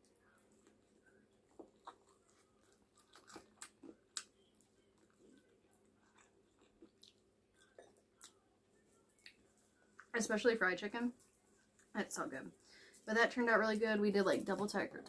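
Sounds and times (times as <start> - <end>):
chewing fried chicken: 0.0 - 10.1.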